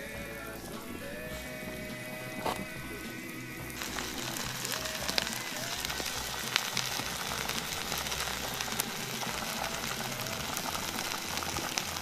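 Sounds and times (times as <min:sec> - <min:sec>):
fire crackle: 0:00.0 - 0:12.0
small fire hissing: 0:00.0 - 0:12.0.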